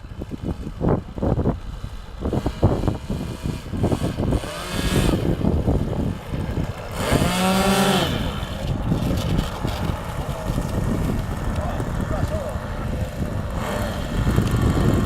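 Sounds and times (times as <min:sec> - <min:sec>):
gusty wind: 0:00.0 - 0:15.0
model aircraft propeller motors whining: 0:00.0 - 0:15.0.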